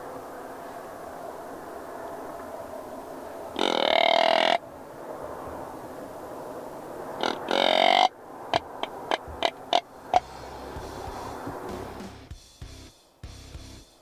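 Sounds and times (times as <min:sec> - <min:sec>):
buzzy deer grunt call: 0:07.2 - 0:08.1.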